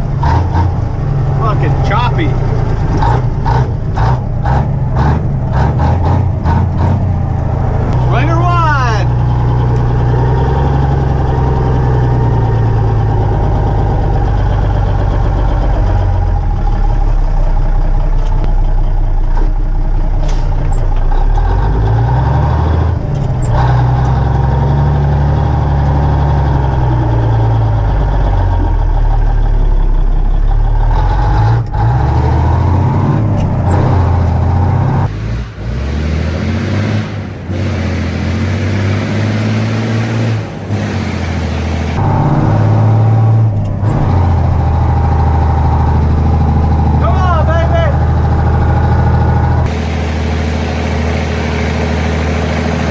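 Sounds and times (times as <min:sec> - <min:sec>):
diesel truck engine revving: 0:00.0 - 0:52.9.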